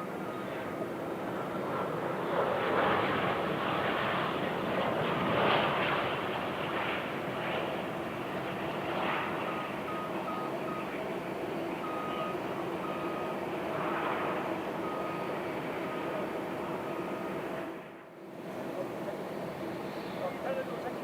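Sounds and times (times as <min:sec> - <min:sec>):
reversing beeper: 0:00.0 - 0:00.8, 0:09.5 - 0:10.9, 0:11.8 - 0:13.4, 0:14.8 - 0:17.4.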